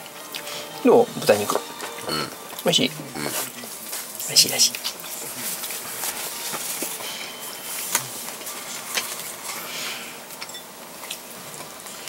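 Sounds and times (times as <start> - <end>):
steady background hiss: 0.0 - 12.0
person chewing food: 1.8 - 12.0.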